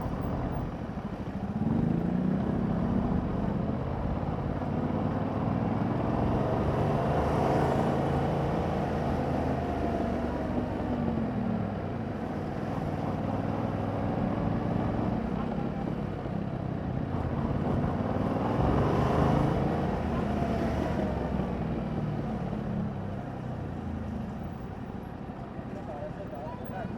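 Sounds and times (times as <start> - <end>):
motorcycle engine revving while riding: 0.2 - 11.6, 17.0 - 22.9.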